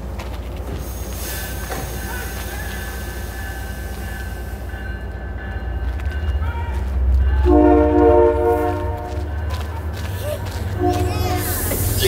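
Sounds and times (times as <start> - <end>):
train coaches rolling past: 0.0 - 12.0
train horn chord: 7.4 - 9.6, 10.8 - 12.0.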